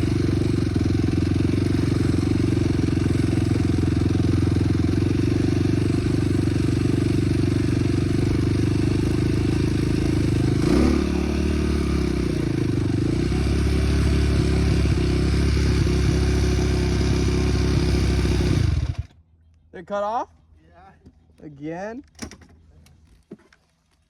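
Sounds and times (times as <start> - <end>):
off-road vehicle engine running: 0.0 - 19.2.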